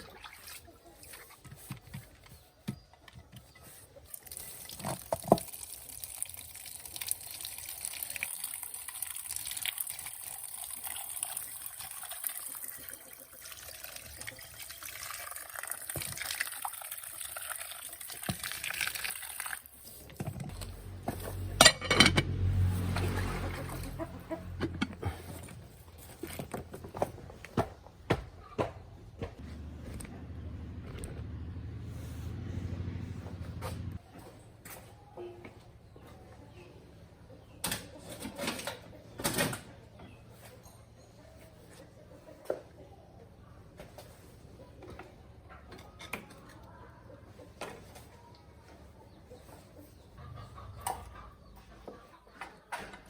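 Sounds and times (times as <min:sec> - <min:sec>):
water pouring: 0:04.1 - 0:19.8.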